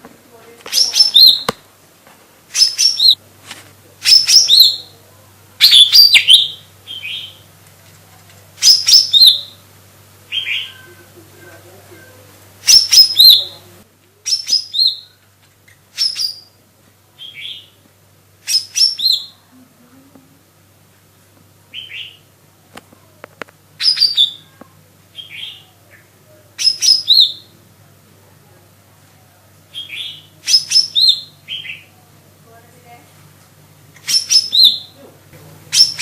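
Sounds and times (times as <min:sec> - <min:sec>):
bird singing chirps and whistles: 0:00.8 - 0:01.5, 0:02.6 - 0:03.2, 0:04.0 - 0:04.9, 0:05.6 - 0:07.4, 0:08.6 - 0:09.6, 0:12.7 - 0:13.4, 0:14.3 - 0:15.2, 0:16.0 - 0:16.6, 0:18.5 - 0:19.4, 0:23.8 - 0:24.4, 0:26.6 - 0:27.5, 0:29.8 - 0:31.9, 0:34.1 - 0:35.0.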